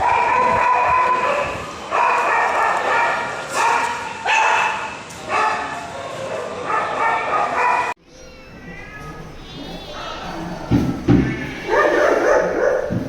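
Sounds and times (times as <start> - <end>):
kittens mewing: 8.1 - 13.0.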